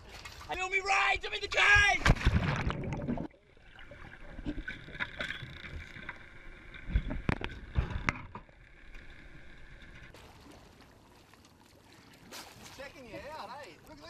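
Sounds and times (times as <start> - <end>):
water noise: 0.0 - 14.0.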